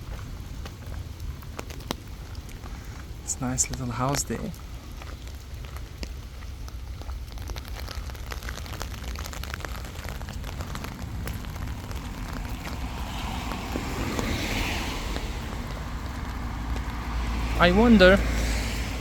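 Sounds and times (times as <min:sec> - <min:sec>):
wind rumbling on microphone: 0:00.0 - 0:19.0
car passing with tyre hiss: 0:10.9 - 0:19.0.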